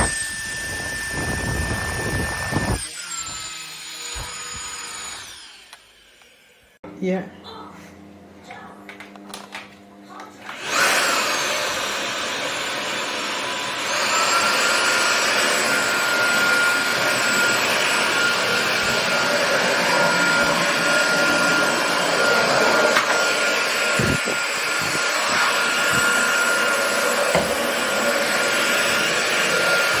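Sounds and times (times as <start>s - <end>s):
stick vacuum running: 8.9s - 30.0s.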